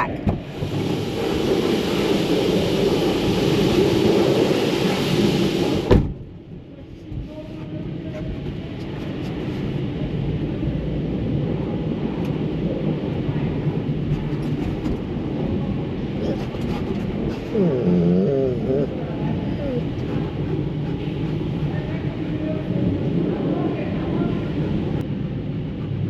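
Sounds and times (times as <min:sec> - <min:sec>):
muffled low rumble: 0:00.0 - 0:26.0
truck wash spray hissing: 0:00.3 - 0:06.1.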